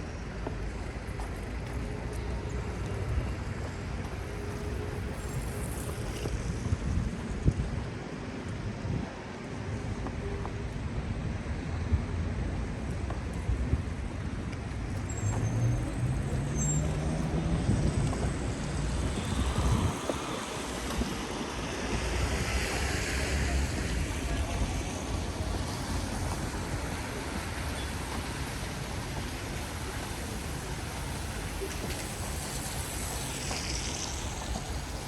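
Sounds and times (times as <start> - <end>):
tyres hissing on wet road: 0.0 - 10.6, 14.9 - 35.0
vehicle engine pulling away: 15.2 - 20.0.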